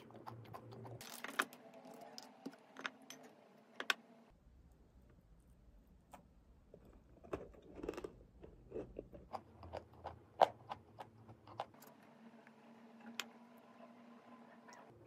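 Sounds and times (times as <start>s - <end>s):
crisp chewing crunches: 7.2s - 11.8s.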